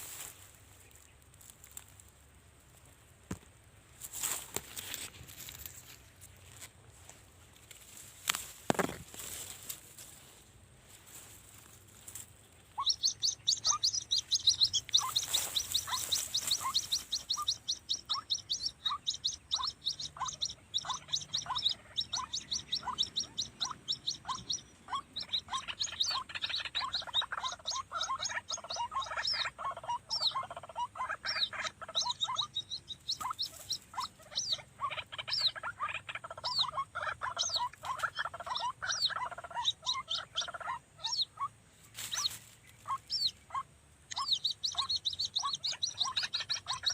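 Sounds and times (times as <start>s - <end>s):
waterhen calls: 12.7s - 46.9s.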